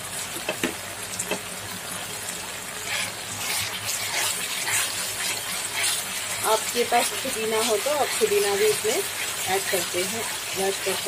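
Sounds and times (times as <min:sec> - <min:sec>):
chillies sizzling in hot oil: 0:00.0 - 0:11.0
metal spatula stirring: 0:02.8 - 0:11.0.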